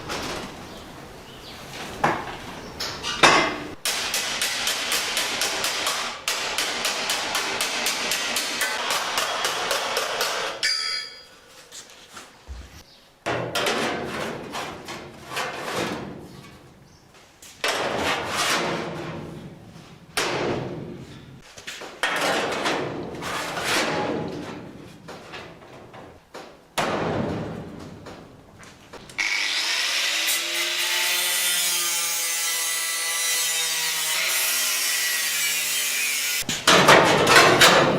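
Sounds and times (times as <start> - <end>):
hammer striking sheet metal: 3.2 - 11.2
sharp ringing noises: 10.6 - 11.5.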